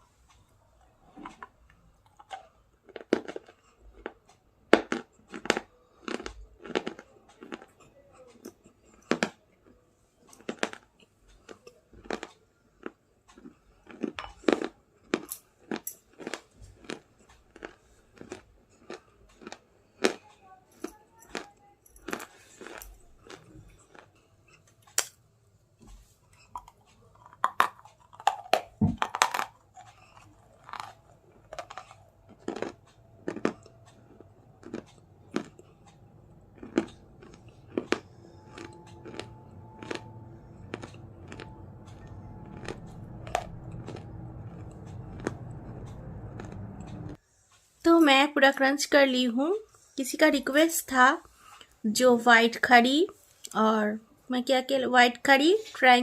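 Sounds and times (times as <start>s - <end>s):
crunching and chewing biscuit: 0.0s - 47.2s
low hum: 29.8s - 47.2s.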